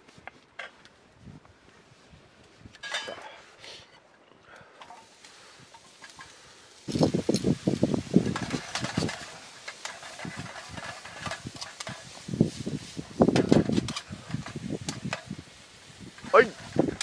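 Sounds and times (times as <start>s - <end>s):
utensils scraping food in a pan: 7.1s - 15.5s
clattering knocks and clicks: 8.2s - 12.2s.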